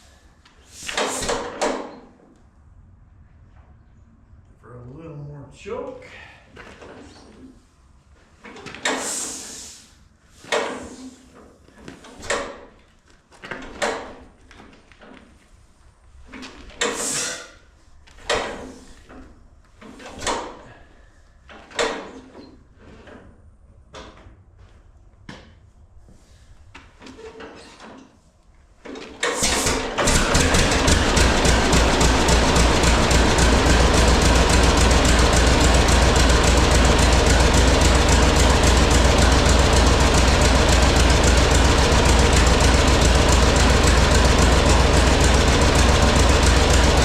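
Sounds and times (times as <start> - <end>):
engine puffing as turned by hand: 29.2 - 47.0
engine running with rapid beat: 29.4 - 47.0.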